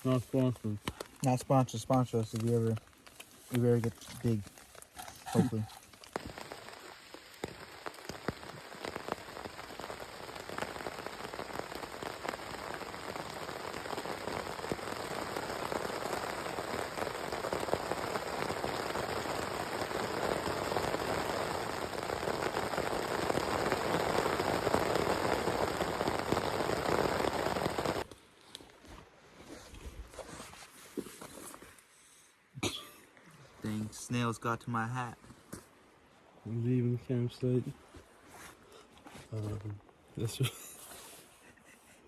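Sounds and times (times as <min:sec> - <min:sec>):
rain falling steadily: 0:00.0 - 0:28.2, 0:32.6 - 0:38.0, 0:39.3 - 0:41.4
raindrop strikes: 0:00.2 - 0:28.0.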